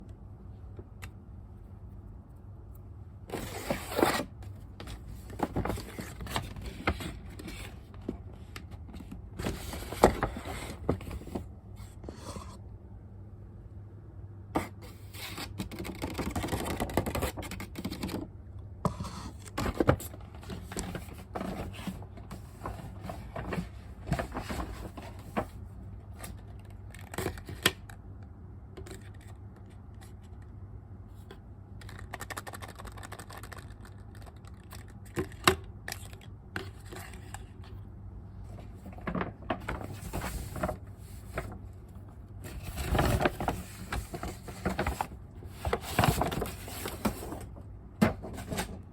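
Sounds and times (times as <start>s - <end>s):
faint steady hum: 0.0s - 48.9s
packaging rustling and scraping: 3.3s - 12.0s, 19.0s - 27.6s, 38.5s - 48.9s.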